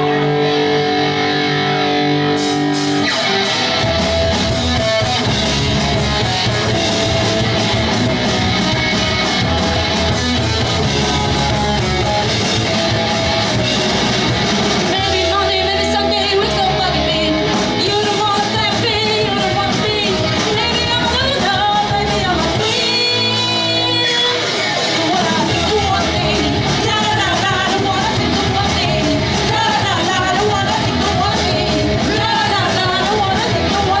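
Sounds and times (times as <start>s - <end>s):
bass guitar: 0.0s - 34.0s
drums: 0.0s - 34.0s
electric guitars: 0.0s - 34.0s
sung lead vocal: 14.8s - 34.0s
shouted backing vocals: 25.6s - 34.0s.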